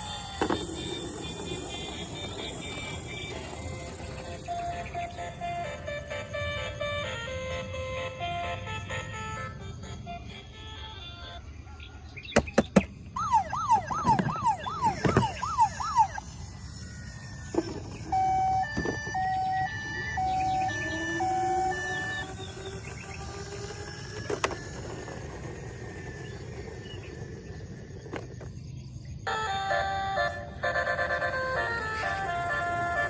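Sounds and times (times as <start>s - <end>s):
toy siren whooping: 0.0s - 12.2s, 13.1s - 28.4s, 29.2s - 33.0s
steady beeps: 13.2s - 23.1s.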